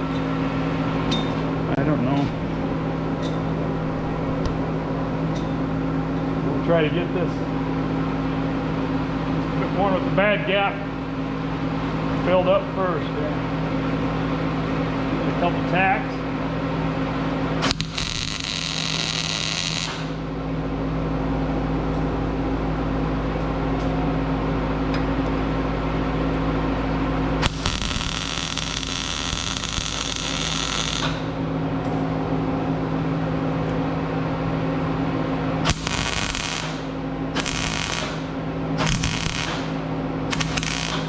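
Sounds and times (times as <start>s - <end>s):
welding arc bursts: 17.6s - 20.2s, 27.4s - 31.3s, 35.6s - 41.0s
welder hum: 17.6s - 20.3s, 27.4s - 31.4s, 35.6s - 41.0s.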